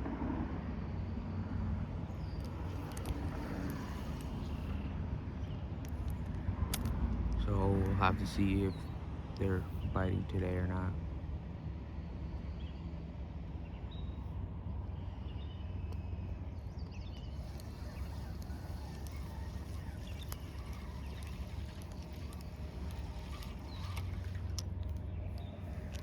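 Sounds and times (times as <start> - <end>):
light clicks: 2.2 - 4.8, 5.8 - 9.6, 16.8 - 26.0
bird chirps: 15.2 - 26.0.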